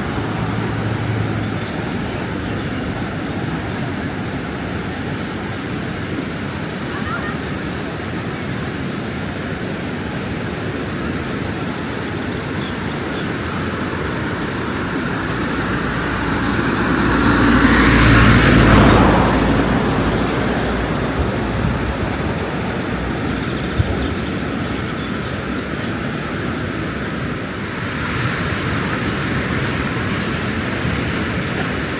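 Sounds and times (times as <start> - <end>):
motor vehicle passing: 0.0 - 4.0, 11.5 - 23.4, 27.5 - 31.9
steady rushing background: 12.6 - 20.0.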